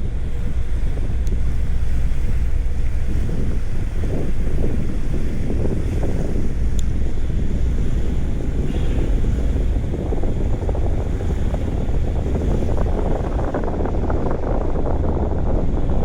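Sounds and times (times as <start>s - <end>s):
wind buffeting microphone: 0.0s - 16.0s
faint tick: 1.2s - 1.4s, 6.7s - 6.9s.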